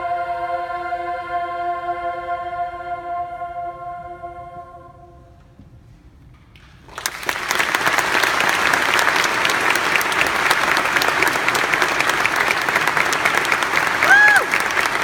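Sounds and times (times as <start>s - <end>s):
audience applause: 6.8s - 15.0s.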